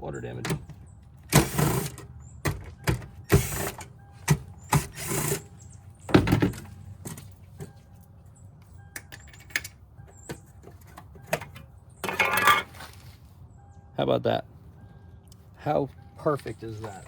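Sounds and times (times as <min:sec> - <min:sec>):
hand tools clattering: 0:09.0 - 0:13.0, 0:16.8 - 0:17.0.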